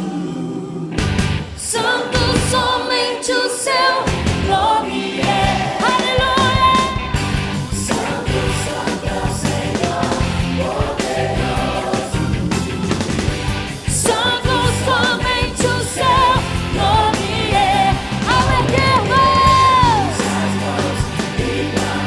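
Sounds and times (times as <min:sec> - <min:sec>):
drums: 0:00.9 - 0:03.0, 0:04.0 - 0:22.0
gospel band playing: 0:03.9 - 0:22.0
person singing with vibrato: 0:13.9 - 0:22.0.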